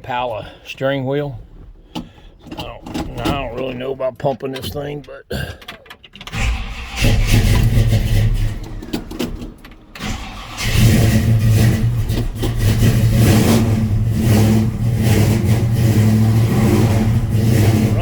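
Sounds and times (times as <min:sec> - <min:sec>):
engine cranking and starting: 0:01.9 - 0:03.8, 0:05.6 - 0:18.0.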